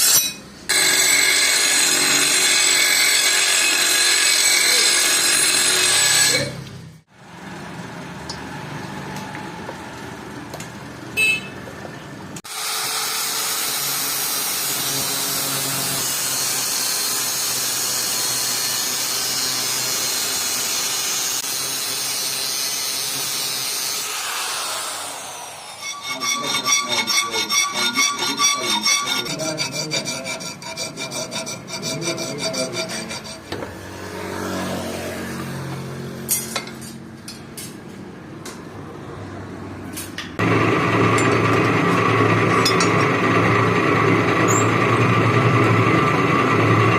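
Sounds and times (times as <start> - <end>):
rasping strokes on ringing metal: 25.5 - 33.6.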